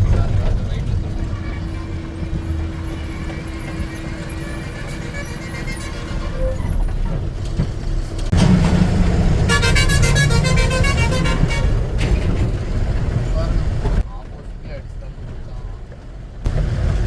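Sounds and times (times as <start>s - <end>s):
vehicle horn pulsing: 0.0s - 6.7s, 9.4s - 12.1s
truck engine and road rumble: 0.0s - 17.0s.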